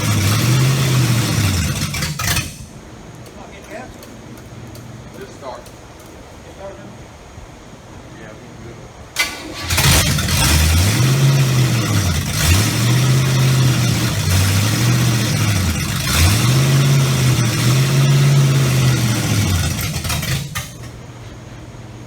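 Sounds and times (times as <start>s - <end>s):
car engine revving: 0.0s - 2.8s, 9.2s - 21.0s.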